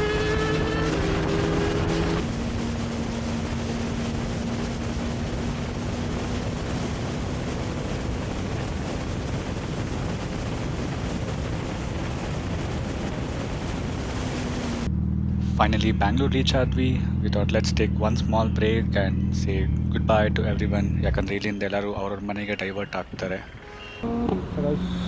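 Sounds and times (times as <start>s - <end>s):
wind rush on microphone: 0.0s - 14.9s
motorcycle engine hum: 0.0s - 22.5s.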